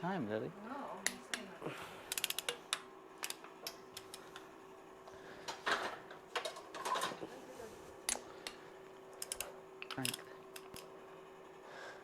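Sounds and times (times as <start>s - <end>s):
wrench ratcheting clicks: 2.1s - 2.6s, 9.2s - 10.9s.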